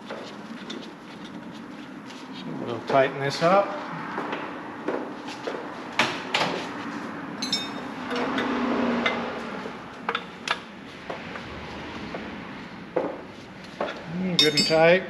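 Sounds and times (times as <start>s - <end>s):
wrench clinking on metal: 7.4s - 7.8s, 14.4s - 15.0s.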